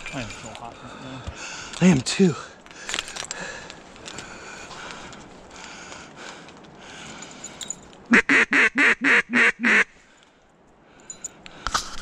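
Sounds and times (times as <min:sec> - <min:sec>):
duck call quacks: 0:08.1 - 0:09.9.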